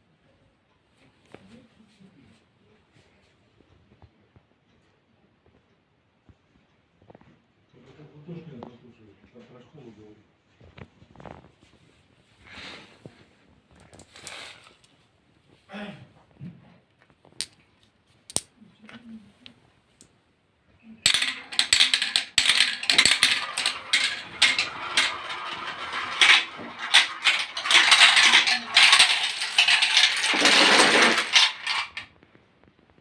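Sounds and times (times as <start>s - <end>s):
dominoes clattering: 21.0s - 32.1s.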